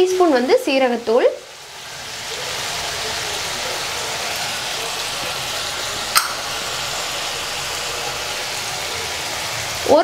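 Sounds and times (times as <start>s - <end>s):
onion and tomato frying in oil: 0.0s - 10.0s
sharp click: 6.2s - 6.4s.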